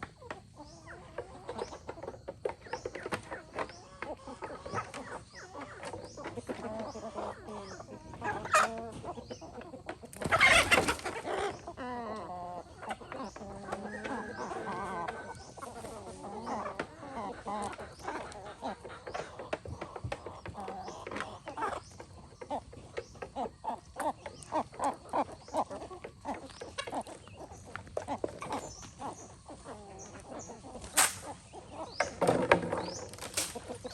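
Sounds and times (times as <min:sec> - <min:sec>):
chickens clucking: 0:00.0 - 0:33.9.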